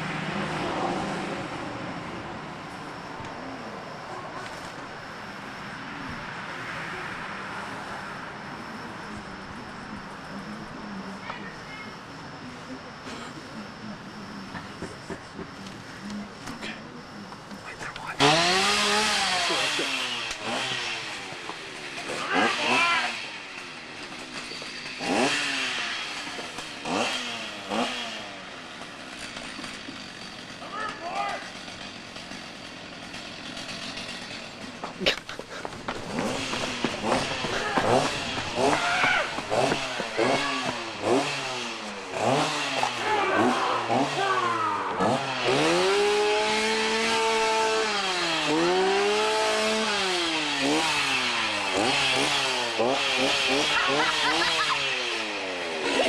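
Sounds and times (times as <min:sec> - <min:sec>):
chainsaw engine revving: 0:00.0 - 0:02.8, 0:14.2 - 0:56.0.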